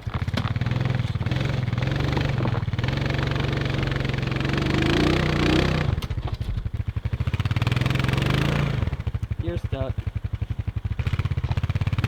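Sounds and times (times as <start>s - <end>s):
vehicle engine revving under load: 0.0s - 9.2s.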